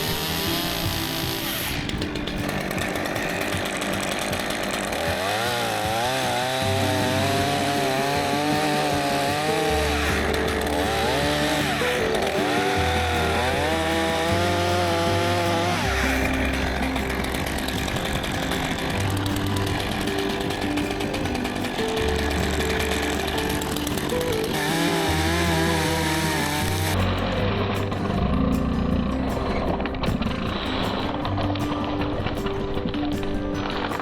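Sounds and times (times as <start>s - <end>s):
chainsaw revving while cutting: 0.0s - 27.0s
background music with bass line: 0.0s - 34.0s.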